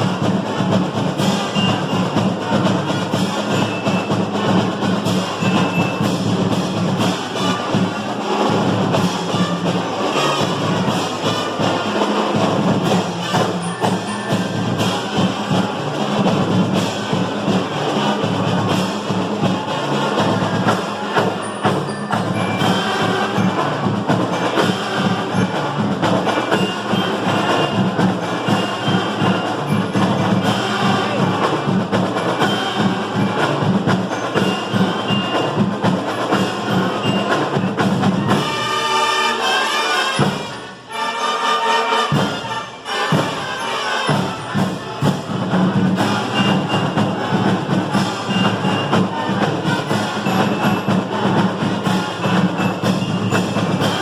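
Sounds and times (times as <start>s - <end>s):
drums and percussion: 0.0s - 54.0s
marching band playing: 0.0s - 54.0s.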